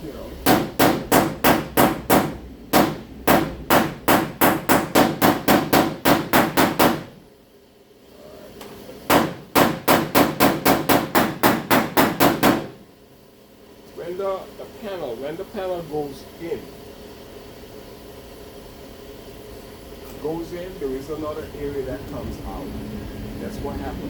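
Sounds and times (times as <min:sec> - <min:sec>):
hammer tapping on sheet metal: 0:00.4 - 0:07.2, 0:09.1 - 0:12.8.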